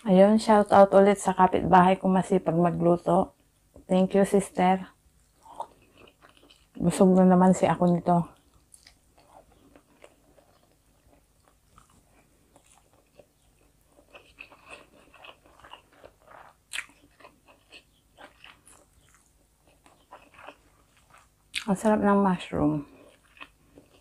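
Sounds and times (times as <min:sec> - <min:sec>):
person chewing food: 0:05.1 - 0:06.8, 0:08.3 - 0:21.7, 0:22.9 - 0:24.0.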